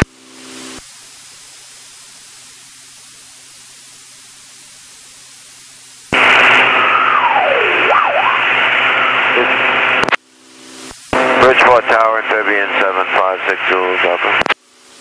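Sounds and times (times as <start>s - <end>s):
intercom hiss: 6.1s - 15.0s
radio static burst: 6.1s - 15.0s.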